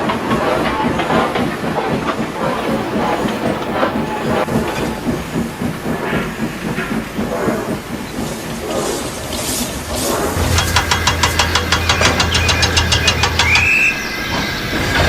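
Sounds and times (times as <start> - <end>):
train rail clatter: 0.0 - 15.0
low engine drone with beats: 2.6 - 4.8, 10.2 - 15.0.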